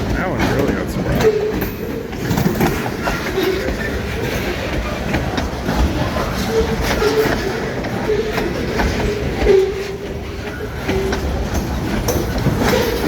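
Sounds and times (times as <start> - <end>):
train cars rumbling past: 0.0 - 13.0
wheels clicking over rail joints: 0.0 - 13.0
faint wheel squeals: 6.0 - 11.4.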